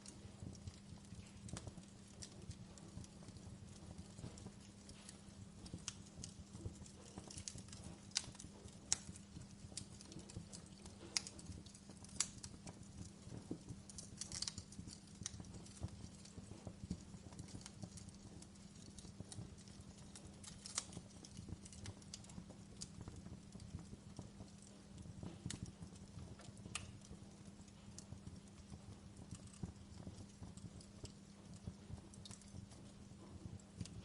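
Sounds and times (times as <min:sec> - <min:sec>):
fire crackling: 0:00.0 - 0:34.0.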